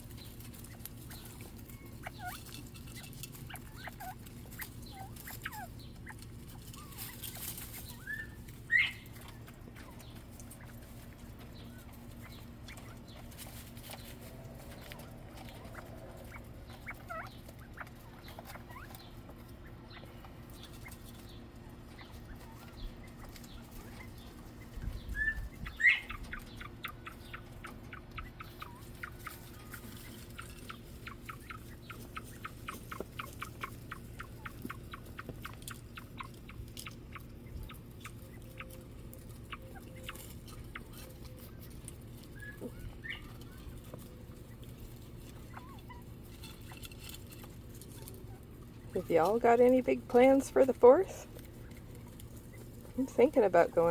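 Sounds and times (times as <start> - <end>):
quail rising chirps: 22.3 - 36.3.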